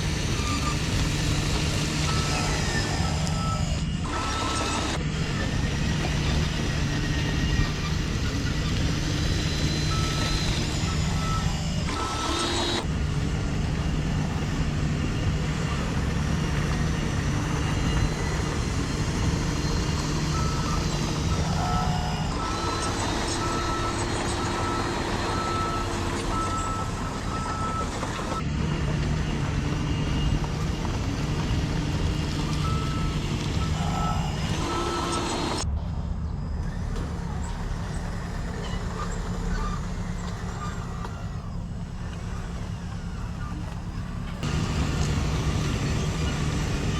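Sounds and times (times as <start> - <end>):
reversing alarm beeping: 0.0 - 12.9, 15.2 - 28.5, 29.2 - 35.7
electric motor hum: 0.0 - 35.8, 36.4 - 46.9.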